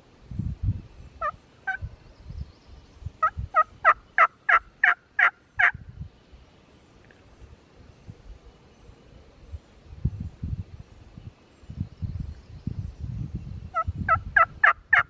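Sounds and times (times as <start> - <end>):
turkey call hen yelps: 13.8 - 15.0.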